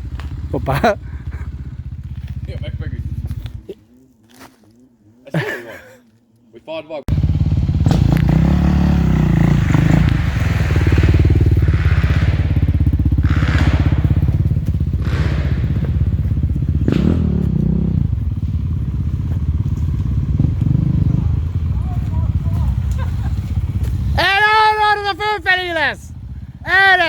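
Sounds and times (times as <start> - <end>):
dirt bike engine revving: 0.0 - 3.7, 7.1 - 24.5.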